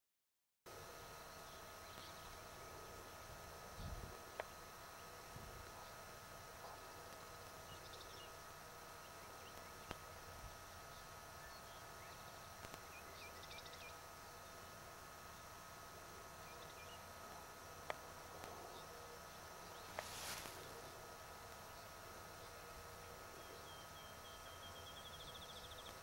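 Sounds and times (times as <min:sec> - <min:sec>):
faint bird chirps: 0:21.7 - 0:26.0.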